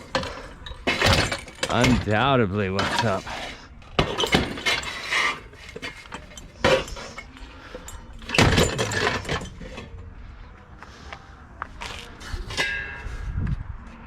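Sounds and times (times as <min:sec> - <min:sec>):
scrap metal clanking and rattling: 0:00.0 - 0:10.1, 0:12.1 - 0:13.3.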